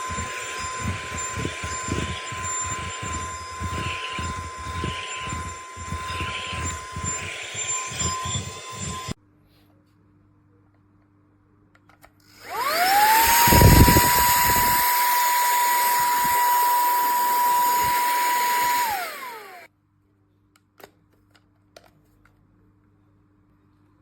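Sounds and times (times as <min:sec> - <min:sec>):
handheld vacuum cleaner whining: 0:00.0 - 0:09.2, 0:12.3 - 0:19.7.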